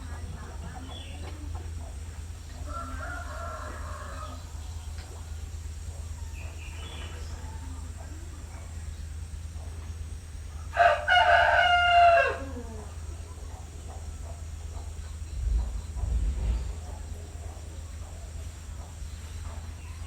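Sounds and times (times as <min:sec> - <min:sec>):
fowl calls: 0:00.0 - 0:20.0
low steady rumble: 0:00.0 - 0:20.0
rooster crowing: 0:02.6 - 0:04.7, 0:10.7 - 0:13.2.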